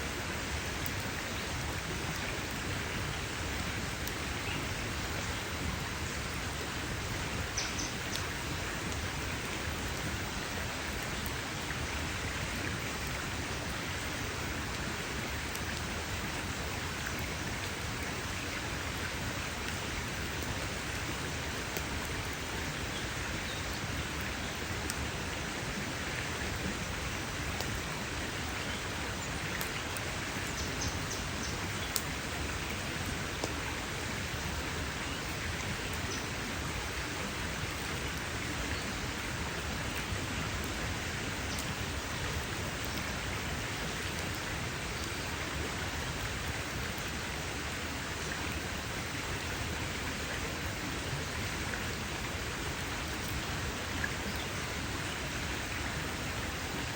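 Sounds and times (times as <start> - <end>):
campfire crackling and popping: 0.3 - 4.5, 5.2 - 22.5, 23.3 - 45.2.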